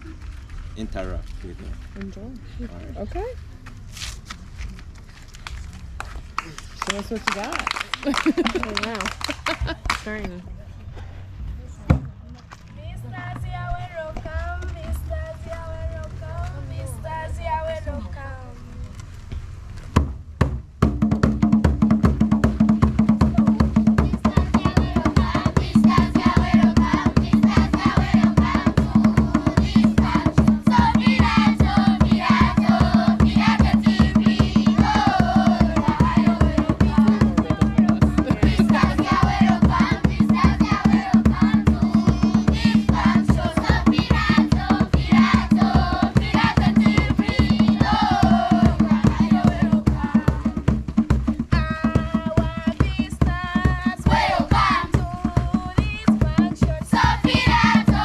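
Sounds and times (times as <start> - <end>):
drums beating fast: 6.3 - 10.4, 20.0 - 58.0
children singing: 23.4 - 50.6, 56.9 - 58.0.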